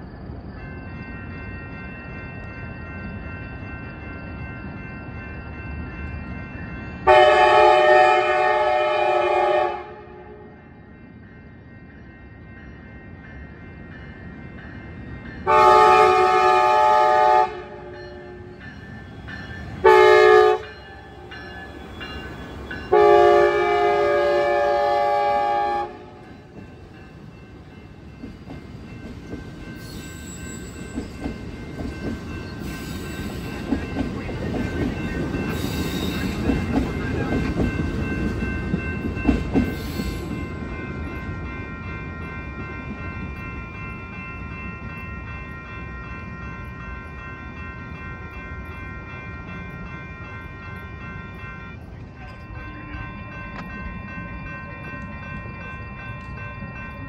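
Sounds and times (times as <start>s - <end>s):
train wheels rumbling: 0.0s - 57.0s
locomotive air horn blasts: 7.1s - 10.4s, 15.5s - 18.0s, 19.8s - 20.7s, 22.9s - 26.2s.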